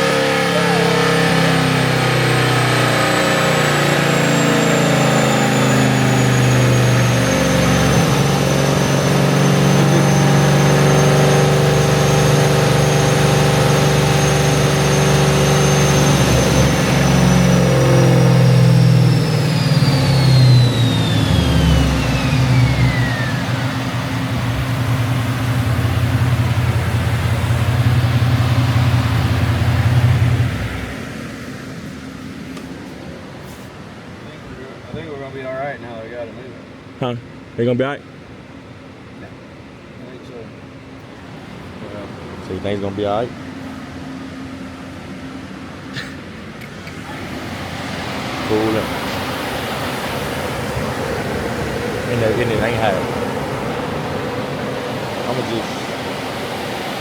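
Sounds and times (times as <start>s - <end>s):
car engine revving with whine: 0.0s - 37.1s, 40.0s - 57.0s.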